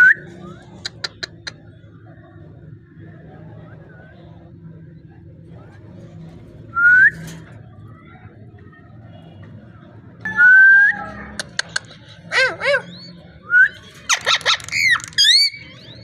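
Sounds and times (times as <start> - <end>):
parrot whistling and calling: 12.3 - 16.0.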